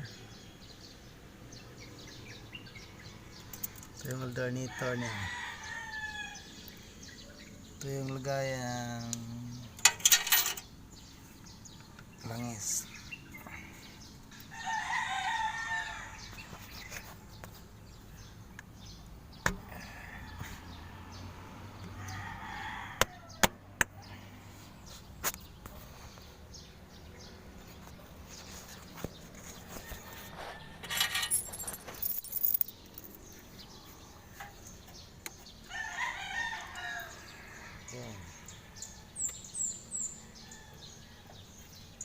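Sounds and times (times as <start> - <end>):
rooster crowing: 4.7 - 6.6, 14.5 - 16.4, 22.0 - 23.5, 35.7 - 39.1
scraping rustle: 27.6 - 33.1.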